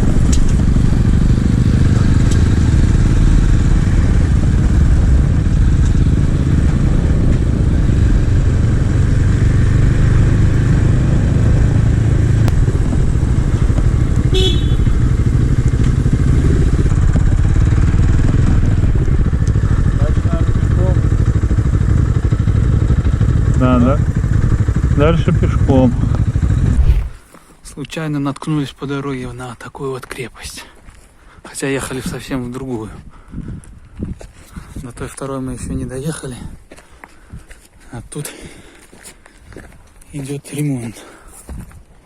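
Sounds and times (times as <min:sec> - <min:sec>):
motorcycle engine running: 0:00.0 - 0:27.2.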